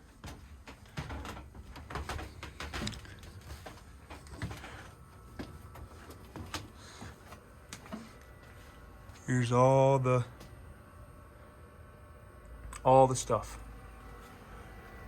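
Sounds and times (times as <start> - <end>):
footsteps and handling knocks: 0.0 - 9.2.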